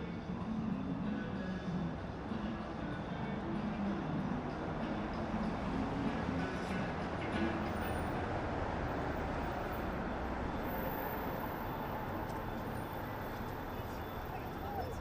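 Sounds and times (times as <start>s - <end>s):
rumble of passing vehicles: 0.0s - 15.0s.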